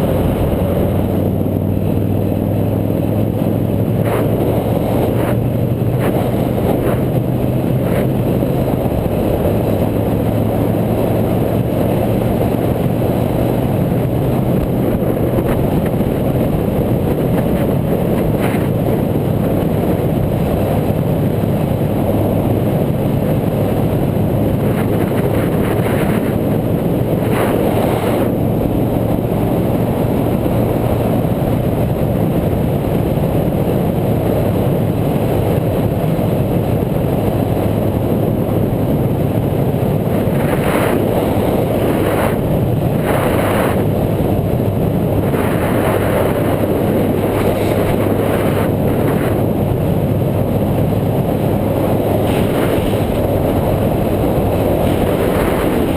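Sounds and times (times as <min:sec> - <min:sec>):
wind rush on microphone: 0:00.0 - 0:55.9.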